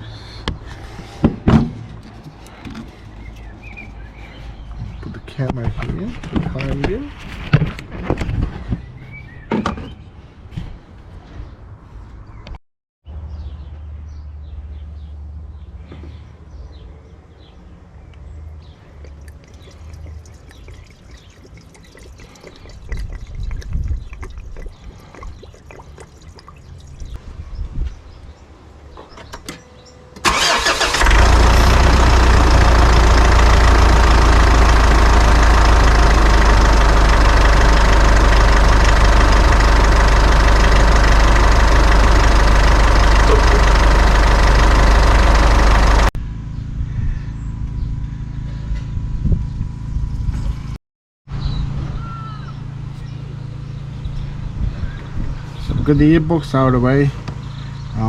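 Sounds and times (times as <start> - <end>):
diesel engine starting and idling: 30.2 - 46.2.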